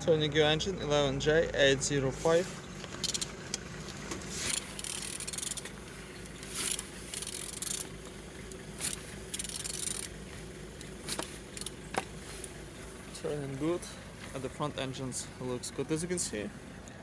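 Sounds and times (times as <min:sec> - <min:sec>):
ratchet tool strokes: 0:04.4 - 0:05.7, 0:06.4 - 0:07.9, 0:08.8 - 0:10.2.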